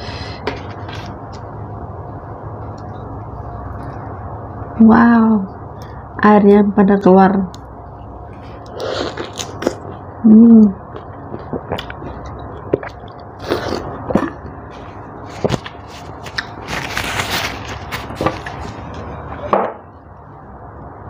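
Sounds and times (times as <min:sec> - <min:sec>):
chewing juicy orange: 0:08.6 - 0:10.0, 0:10.8 - 0:16.8.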